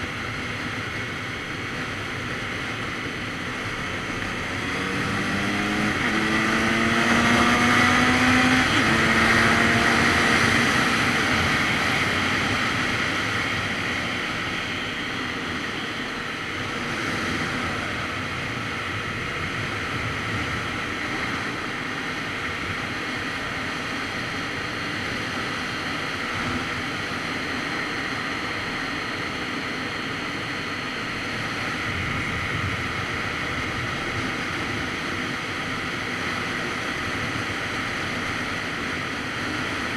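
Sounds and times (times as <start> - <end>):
motorcycle engine accelerating: 2.6 - 24.2.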